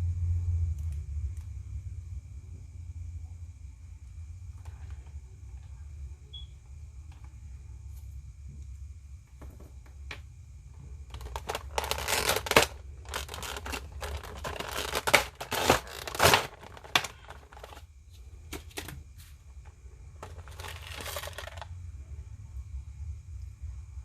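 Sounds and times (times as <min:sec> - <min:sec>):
plastic and cardboard crinkling: 0:11.0 - 0:17.9, 0:20.2 - 0:21.7.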